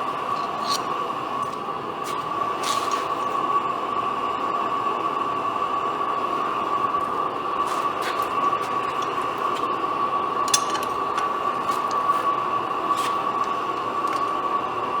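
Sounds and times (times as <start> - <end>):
engine being cranked whirring: 0.1 - 1.7, 7.6 - 14.4.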